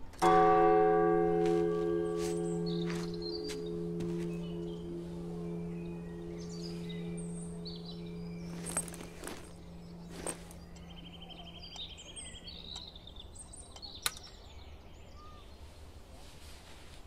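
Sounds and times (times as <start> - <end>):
birds singing: 0.2 - 15.8
faint low held tone: 0.8 - 12.6
sharp clicks: 13.7 - 14.4.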